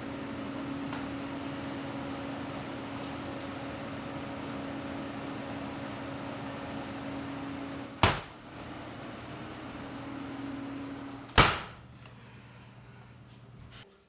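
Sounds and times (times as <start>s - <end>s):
steady low hum: 0.0s - 13.8s
sharp bangs: 8.0s - 8.4s, 11.3s - 11.9s.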